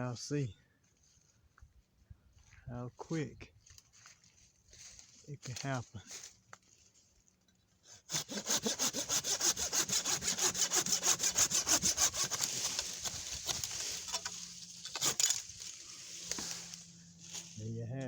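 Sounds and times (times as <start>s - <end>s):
hand saw cutting branch: 8.0s - 17.6s.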